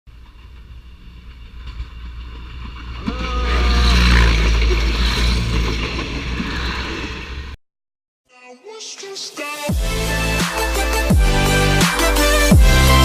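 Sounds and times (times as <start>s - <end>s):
train rumble: 0.1s - 7.6s.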